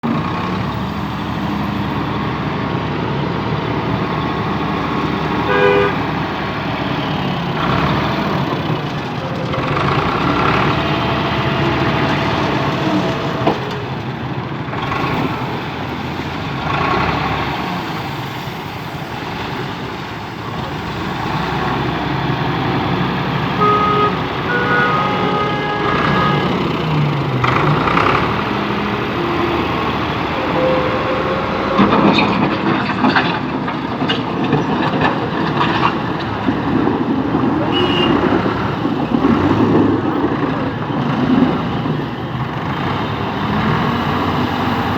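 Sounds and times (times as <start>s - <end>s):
tractor engine running: 0.0s - 44.9s
horn-like toots: 5.5s - 6.0s, 23.5s - 26.8s, 28.9s - 33.0s.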